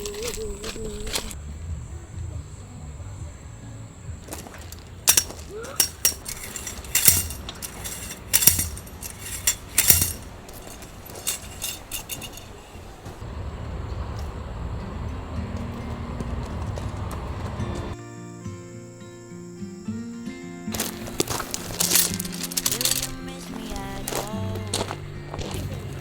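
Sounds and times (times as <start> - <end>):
sharp clinks and knocks: 4.3 - 13.2, 20.8 - 24.3.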